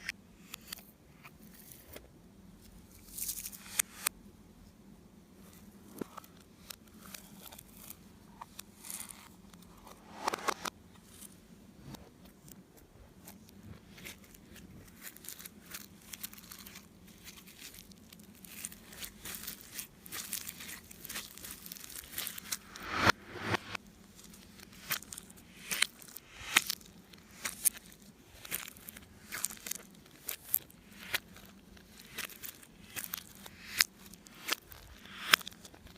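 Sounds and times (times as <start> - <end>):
slime crackling and popping: 13.9 - 23.1, 24.0 - 35.9.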